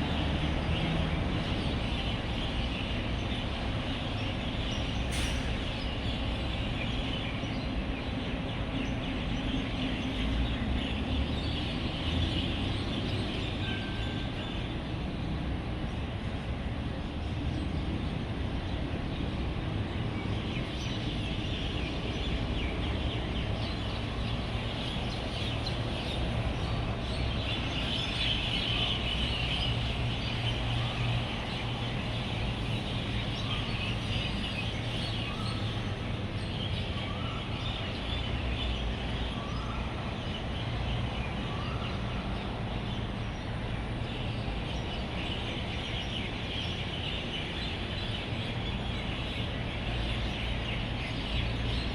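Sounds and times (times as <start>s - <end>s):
road traffic rumble: 0.0s - 51.9s
flock of birds chirping: 17.1s - 51.9s.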